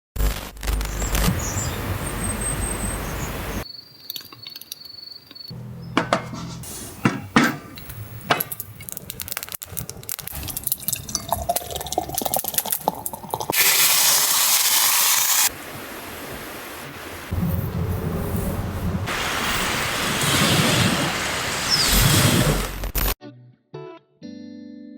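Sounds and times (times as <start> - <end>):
glass clinking and knocking: 5.9 - 8.6, 10.4 - 13.5
drink pouring into glass: 9.2 - 15.5
loud steady hiss: 13.6 - 18.3, 19.0 - 22.7.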